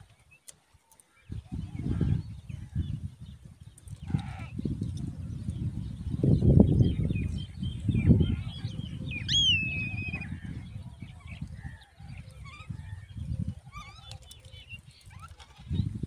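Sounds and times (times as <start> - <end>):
high chirping bird calls: 6.4 - 11.5.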